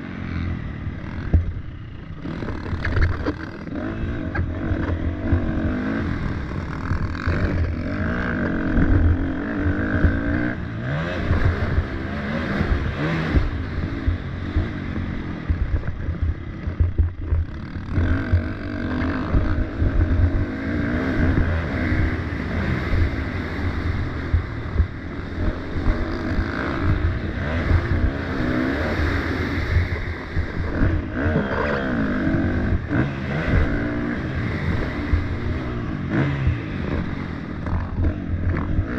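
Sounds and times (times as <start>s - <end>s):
dirt bike engine racing: 0.0s - 38.9s.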